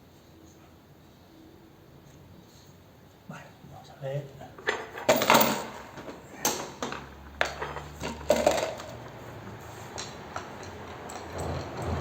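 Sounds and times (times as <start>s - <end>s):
metal tools clinking: 4.6s - 9.2s, 9.8s - 12.0s.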